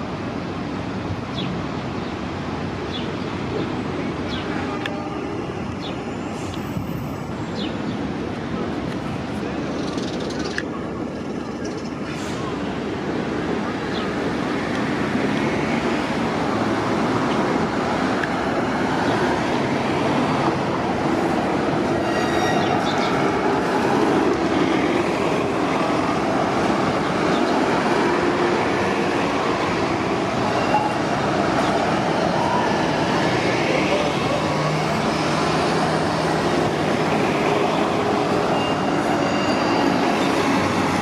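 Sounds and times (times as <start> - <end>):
faint high squeals: 22.0 - 23.1, 38.5 - 40.2.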